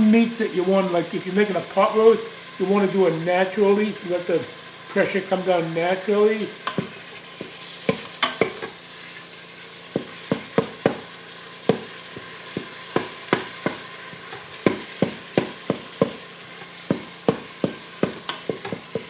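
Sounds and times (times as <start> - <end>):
meat sizzling in a pot: 0.0 - 19.0
utensil scraping a pot: 11.6 - 19.0.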